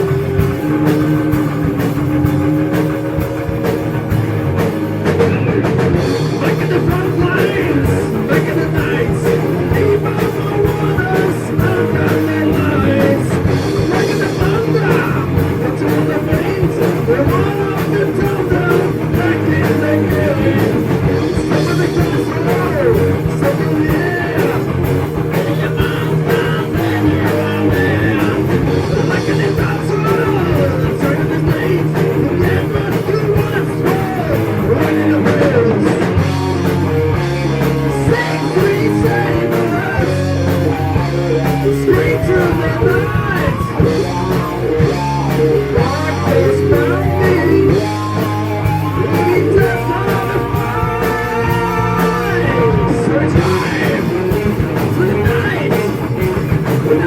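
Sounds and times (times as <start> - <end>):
distorted electric guitar: 0.0 - 57.0
heavy metal band playing: 0.0 - 57.0.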